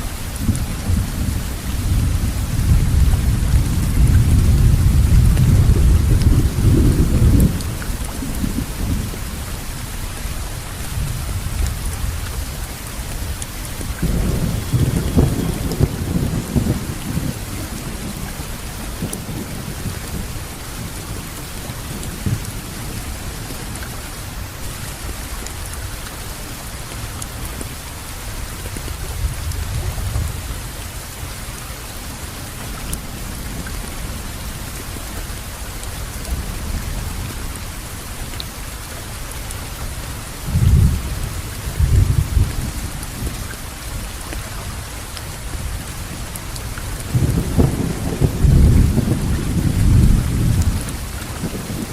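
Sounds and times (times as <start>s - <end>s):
steady rain falling: 0.0s - 51.9s
low rolling thunder: 0.4s - 9.5s, 13.7s - 23.8s, 36.0s - 38.3s, 39.9s - 44.1s, 45.6s - 51.9s.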